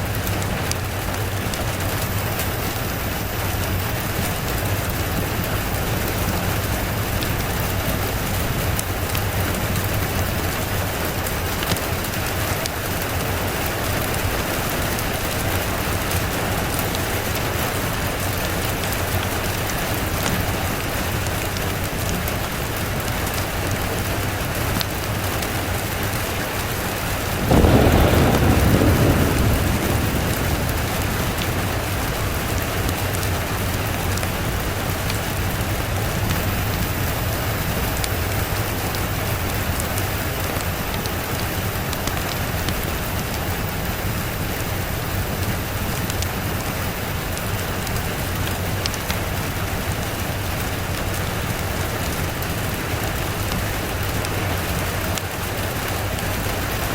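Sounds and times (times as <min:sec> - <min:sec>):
steady rain falling: 0:00.0 - 0:56.9
thunder clap rumbling: 0:26.9 - 0:44.5.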